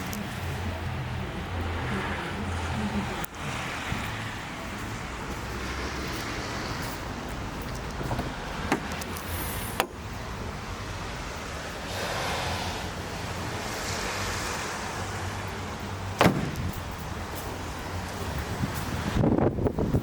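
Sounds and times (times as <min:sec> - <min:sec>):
van interior low rumble: 0:00.0 - 0:20.0
sharp knocks: 0:08.0 - 0:09.0, 0:09.8 - 0:10.0, 0:16.2 - 0:17.0.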